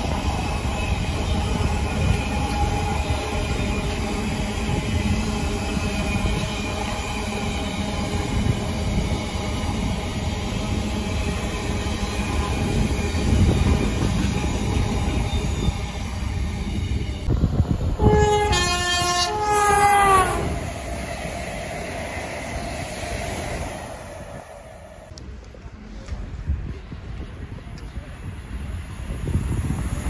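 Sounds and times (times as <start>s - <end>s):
freight train rumbling on rails: 0.0s - 30.0s
two-tone train horn: 18.0s - 20.6s.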